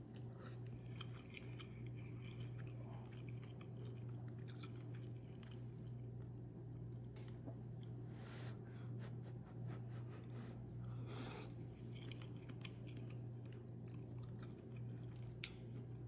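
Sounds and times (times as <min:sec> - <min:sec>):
close chewing of food: 0:00.1 - 0:06.3, 0:11.1 - 0:16.0.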